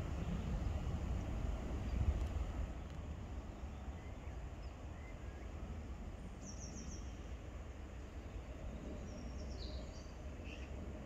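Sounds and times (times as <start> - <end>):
steady low rumble: 0.0 - 3.7.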